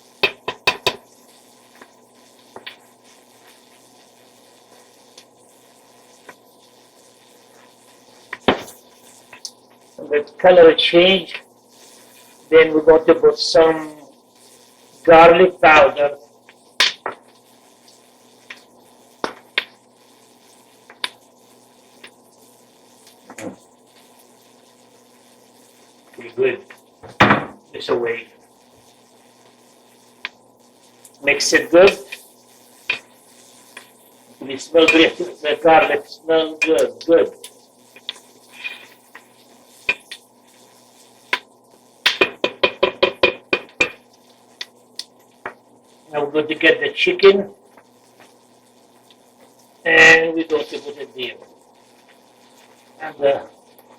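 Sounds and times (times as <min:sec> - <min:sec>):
utensil knocking against pot: 0:00.2 - 0:01.0, 0:42.1 - 0:44.0.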